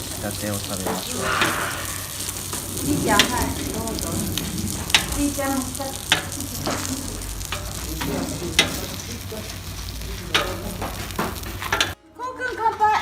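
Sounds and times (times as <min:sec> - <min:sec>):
meat sizzling on a grill: 0:00.0 - 0:12.0.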